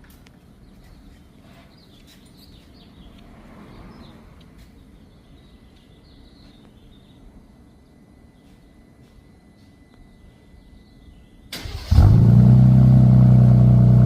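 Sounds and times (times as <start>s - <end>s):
low steady background rumble: 0.0s - 14.0s
birds chirping: 0.5s - 8.8s, 9.8s - 11.8s.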